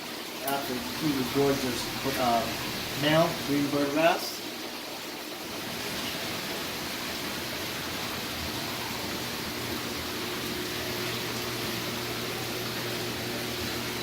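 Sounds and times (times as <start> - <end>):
faint low pump hum: 0.0 - 14.0
water rushing in aquarium: 0.0 - 14.0.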